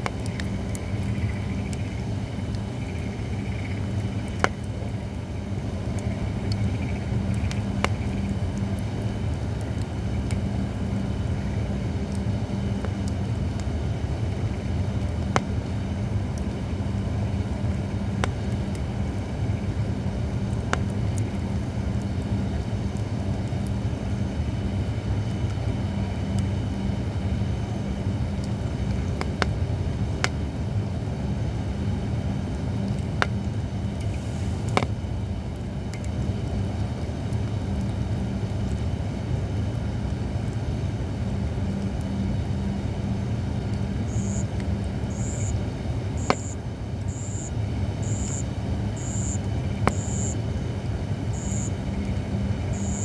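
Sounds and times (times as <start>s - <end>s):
campfire crackling and popping: 0.0s - 24.3s, 26.2s - 38.0s, 43.6s - 53.0s
low steady hum: 0.0s - 53.0s
firewood popping: 11.9s - 21.0s, 46.2s - 50.6s.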